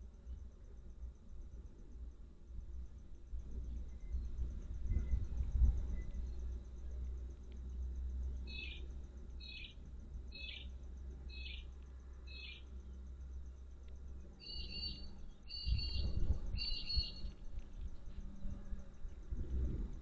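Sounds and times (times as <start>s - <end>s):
low steady rumble: 0.0s - 20.0s
bird chirping and calling: 14.4s - 16.0s.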